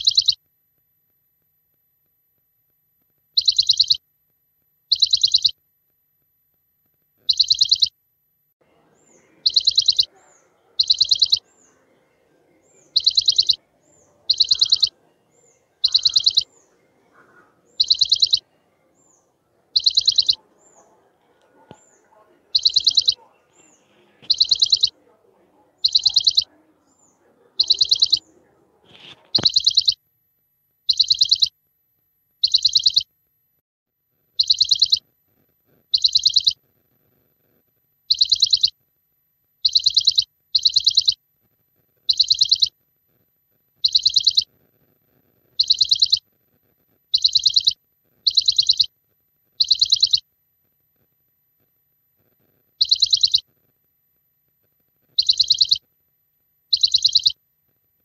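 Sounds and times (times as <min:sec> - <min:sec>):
soft high short chirps: 0:00.0 - 0:00.4, 0:03.4 - 0:04.0, 0:04.9 - 0:05.6, 0:07.2 - 0:07.9, 0:09.1 - 0:11.7, 0:12.7 - 0:20.9, 0:21.6 - 0:24.9, 0:25.8 - 0:30.1, 0:30.9 - 0:33.1, 0:34.4 - 0:35.0, 0:35.9 - 0:36.6, 0:38.1 - 0:38.7, 0:39.6 - 0:41.2, 0:42.1 - 0:42.7, 0:43.8 - 0:44.5, 0:45.6 - 0:46.2, 0:47.1 - 0:48.9, 0:49.6 - 0:50.2, 0:52.8 - 0:53.4, 0:55.1 - 0:55.8, 0:56.7 - 0:57.4
trilled bird chirps: 0:00.0 - 0:00.4, 0:03.4 - 0:04.0, 0:04.9 - 0:05.6, 0:07.2 - 0:08.0, 0:08.8 - 0:30.1, 0:30.8 - 0:31.6, 0:32.4 - 0:33.1, 0:34.4 - 0:35.0, 0:35.9 - 0:36.6, 0:38.1 - 0:38.8, 0:39.6 - 0:41.2, 0:42.1 - 0:42.8, 0:43.8 - 0:44.5, 0:45.6 - 0:46.2, 0:47.1 - 0:48.9, 0:49.6 - 0:50.2, 0:52.8 - 0:53.4, 0:55.1 - 0:55.8, 0:56.7 - 0:57.4
faint background noise: 0:00.0 - 0:58.0.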